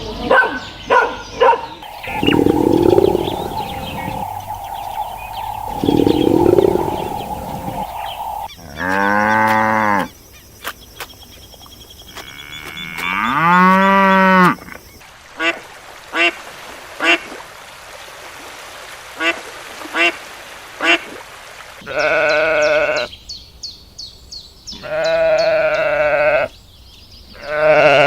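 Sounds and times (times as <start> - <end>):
long drawn-out animal calls: 1.8 - 8.5
short repeated animal calls: 1.8 - 8.5.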